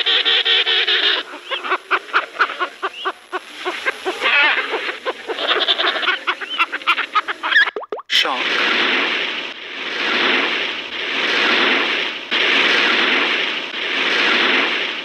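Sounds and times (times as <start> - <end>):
penguins calling: 0.0 - 7.7.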